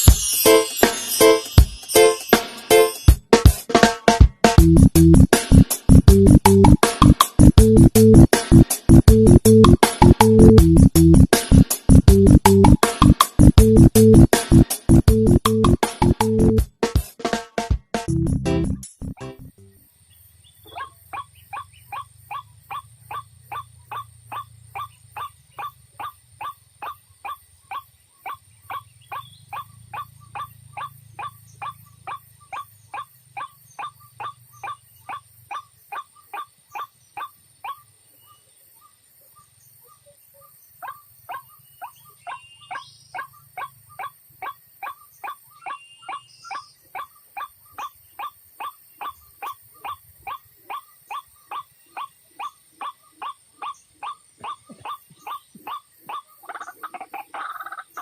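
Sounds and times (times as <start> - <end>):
faint high bird chirps: 19.6 - 58.0
waterhen repeated kwak call: 20.7 - 37.9, 40.8 - 58.0.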